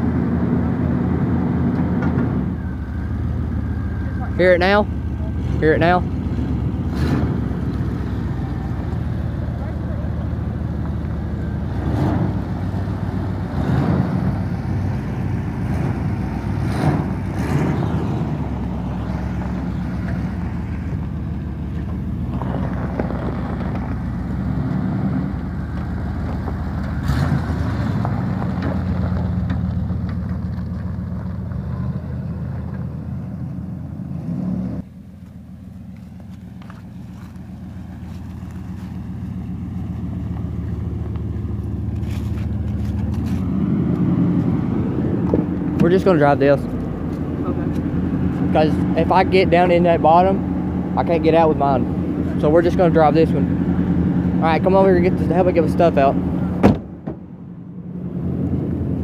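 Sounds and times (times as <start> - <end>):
pickup truck engine idling: 2.4 - 13.5, 34.8 - 43.2
short engine knocks: 56.6 - 57.3.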